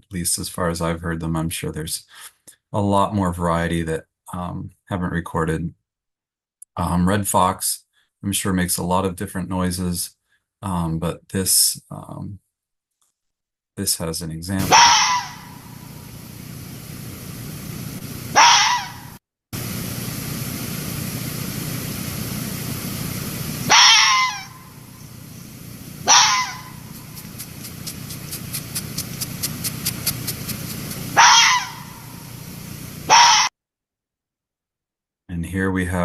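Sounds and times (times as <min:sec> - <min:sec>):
fox barking calls: 0:14.6 - 0:16.1, 0:18.3 - 0:19.2, 0:23.6 - 0:25.0, 0:26.0 - 0:32.4, 0:33.0 - 0:33.5.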